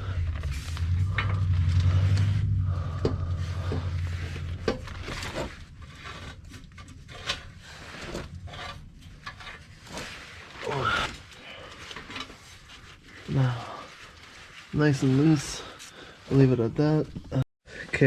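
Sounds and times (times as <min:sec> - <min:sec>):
metal exhaust parts clinking: 0:00.0 - 0:10.4
low steady hum: 0:00.0 - 0:14.6.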